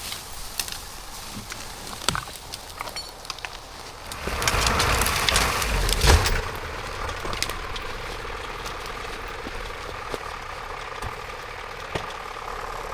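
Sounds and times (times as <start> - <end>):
cracks and snaps: 0.1 - 10.2
engine idling: 3.6 - 12.9
rushing sound: 4.0 - 10.1
heavy thump: 4.2 - 8.8.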